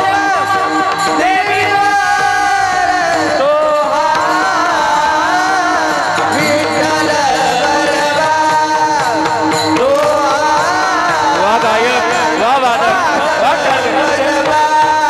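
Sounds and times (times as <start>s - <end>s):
mridang drum: 0.0s - 15.0s
singers performing devotional song: 0.0s - 15.0s.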